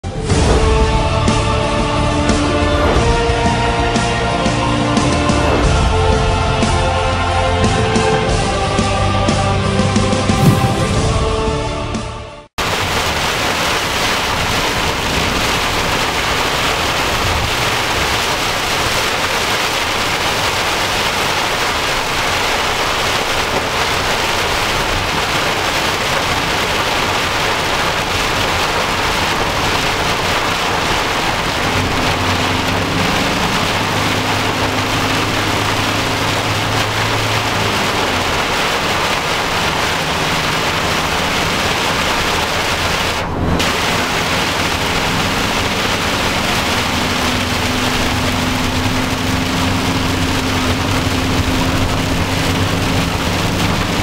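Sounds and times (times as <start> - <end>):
low car hum: 10.3 - 54.0
heavy rain hammering on car roof: 12.6 - 54.0.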